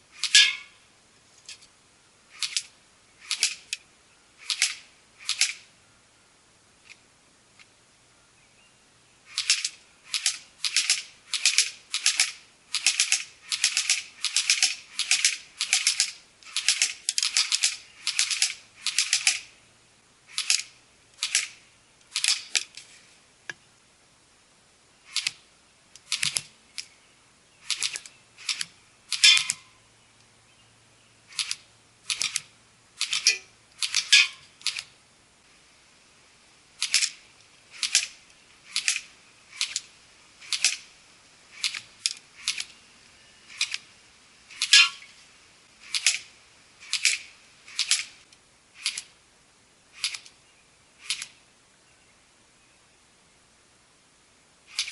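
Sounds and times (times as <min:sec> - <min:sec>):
airsoft rifle firing bursts: 0:09.3 - 0:19.5.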